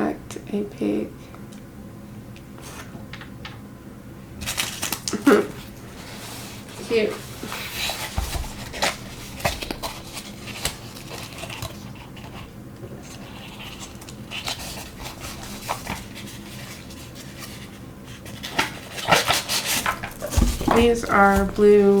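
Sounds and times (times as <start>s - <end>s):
packaging rustling: 4.4s - 22.0s.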